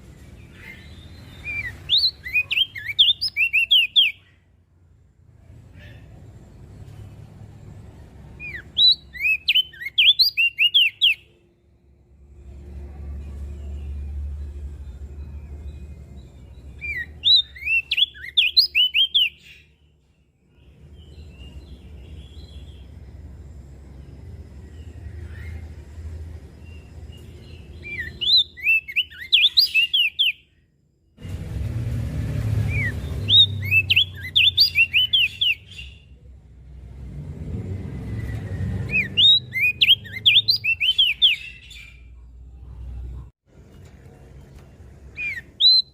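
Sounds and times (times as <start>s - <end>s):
bird singing high chirps: 0.1s - 4.6s, 5.8s - 30.7s, 32.6s - 36.4s, 38.0s - 43.1s, 45.1s - 45.9s.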